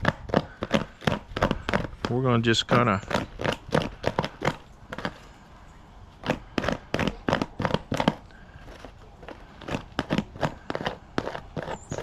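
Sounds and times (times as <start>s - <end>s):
comb scratching through feathers: 6.2s - 12.0s.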